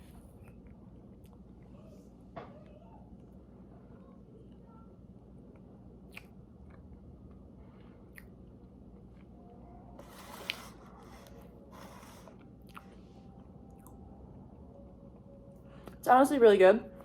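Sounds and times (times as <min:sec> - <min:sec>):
person chewing cake: 0:05.4 - 0:16.0.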